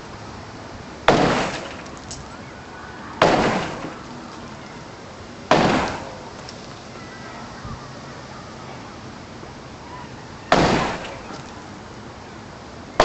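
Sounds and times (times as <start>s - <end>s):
heavy crashing blows: 1.0s - 2.2s, 3.2s - 4.6s, 5.5s - 6.5s, 10.5s - 11.4s
wood breaking and rattling: 1.1s - 2.2s, 3.2s - 4.1s.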